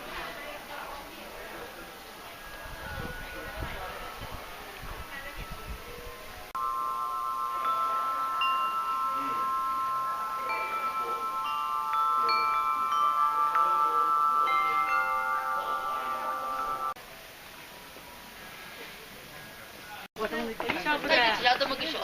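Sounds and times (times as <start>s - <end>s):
chimes ringing: 2.3s - 17.0s.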